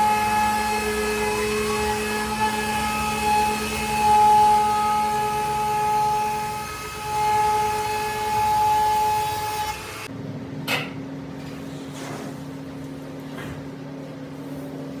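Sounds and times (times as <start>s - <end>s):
cutting noise: 0.0s - 8.0s
router spindle high whine: 0.0s - 10.1s
low machine hum: 0.0s - 15.0s.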